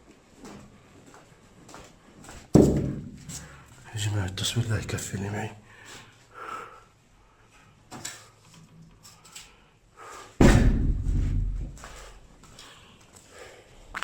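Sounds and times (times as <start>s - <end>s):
door slamming shut: 10.4s - 11.9s.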